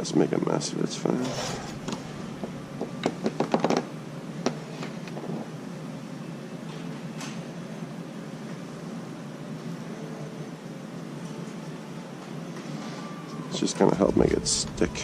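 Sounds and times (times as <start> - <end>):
low hum: 1.2 - 4.7, 13.1 - 15.0.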